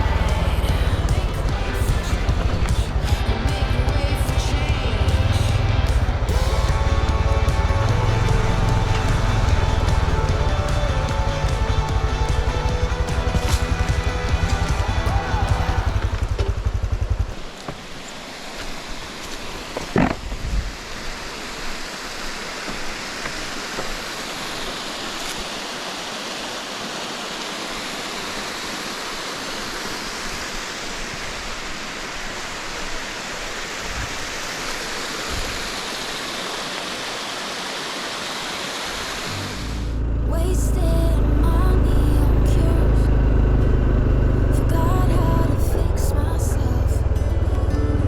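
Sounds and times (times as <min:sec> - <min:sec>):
motorcycle engine running: 0:00.0 - 0:17.6, 0:39.4 - 0:48.0
mountain stream rushing: 0:00.0 - 0:40.0.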